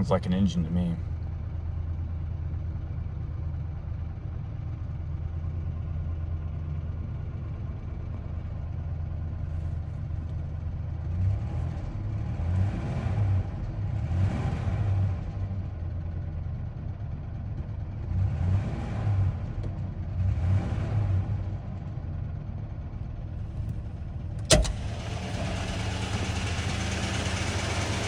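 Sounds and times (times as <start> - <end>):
engine idling: 22.8 - 28.0
engine revving: 23.4 - 28.0.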